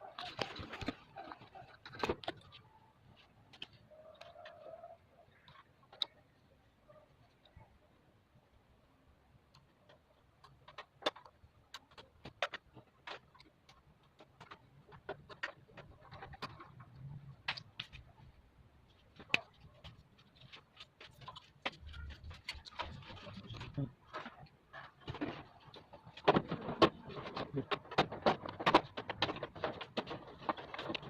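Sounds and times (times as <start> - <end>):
parts clicking and knocking: 9.3 - 31.0.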